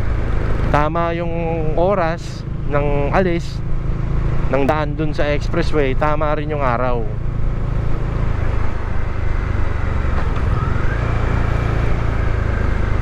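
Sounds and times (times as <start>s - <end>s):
motorcycle engine cruising: 0.0s - 13.0s
wind and road rumble: 0.0s - 13.0s
faint rising tone: 9.7s - 13.0s.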